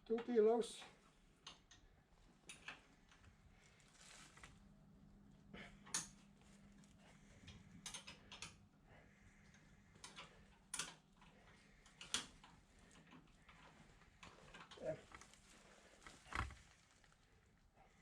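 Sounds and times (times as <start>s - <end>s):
faint steady hum: 0.0s - 18.0s
hand tools clicking on metal: 7.5s - 8.6s, 10.0s - 15.2s.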